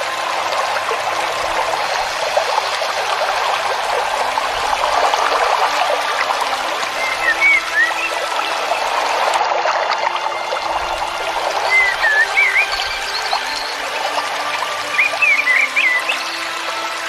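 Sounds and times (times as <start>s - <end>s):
stream trickling: 0.0s - 17.0s
bird chirps: 7.0s - 8.2s, 11.7s - 13.8s, 14.8s - 16.4s.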